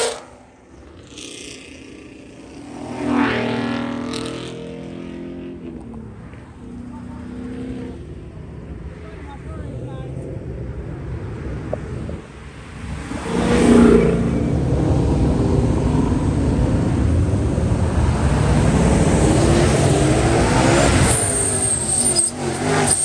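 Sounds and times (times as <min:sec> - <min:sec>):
car engine revving hard: 0:00.0 - 0:05.7, 0:12.8 - 0:23.0.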